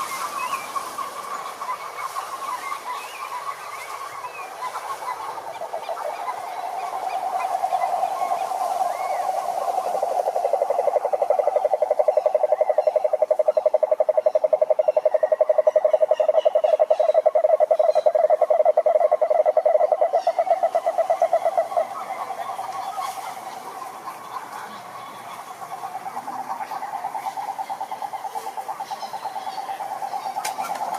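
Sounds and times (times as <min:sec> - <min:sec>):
chorus of frogs: 0:00.0 - 0:30.9
frog rapidly pulsed trill: 0:09.6 - 0:21.7.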